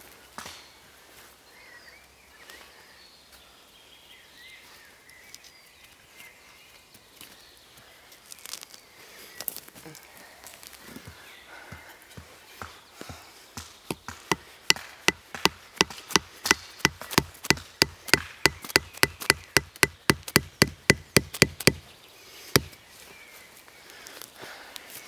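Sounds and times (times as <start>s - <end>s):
hand tool striking wood: 13.6s - 21.9s, 22.6s - 22.8s.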